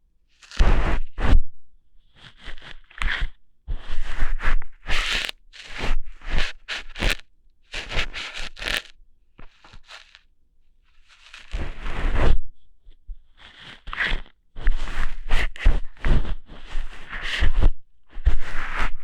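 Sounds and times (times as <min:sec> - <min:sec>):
close-miked crackling and scraping: 0:00.3 - 0:01.3, 0:02.0 - 0:12.3.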